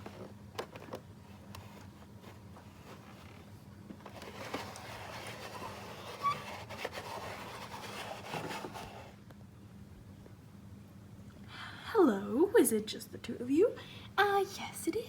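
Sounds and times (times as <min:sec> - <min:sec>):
plastic toys rustling and scraping: 0:00.0 - 0:09.2.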